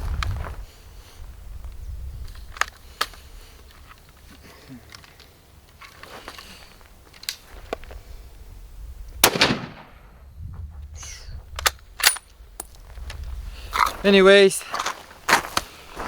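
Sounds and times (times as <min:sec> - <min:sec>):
gunshots with echo: 0:09.2 - 0:10.1.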